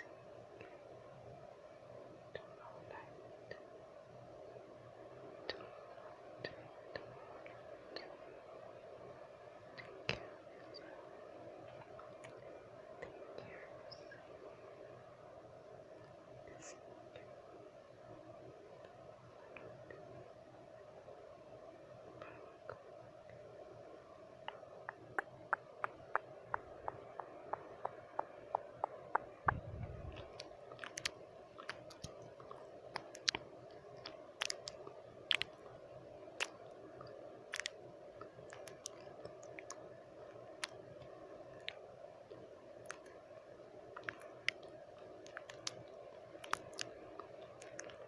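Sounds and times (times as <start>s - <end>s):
white noise: 0.0s - 48.0s
tongue and lip clicks: 24.4s - 35.7s, 36.4s - 43.2s, 44.0s - 48.0s.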